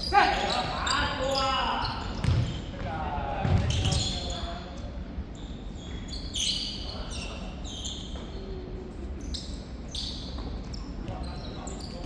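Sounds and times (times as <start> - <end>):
shoes squeaking on court floor: 0.0 - 2.8, 3.6 - 4.6, 5.3 - 12.0
low hall rumble: 0.0 - 5.9.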